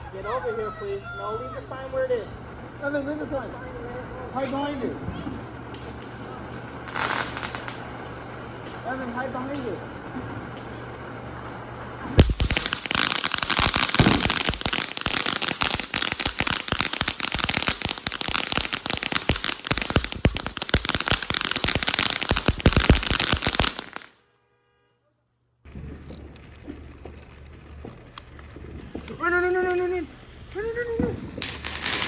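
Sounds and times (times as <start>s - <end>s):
firework crackling pops: 3.8s - 24.2s, 25.7s - 32.0s
firework bang: 6.9s - 10.8s, 12.0s - 24.1s, 31.0s - 32.0s.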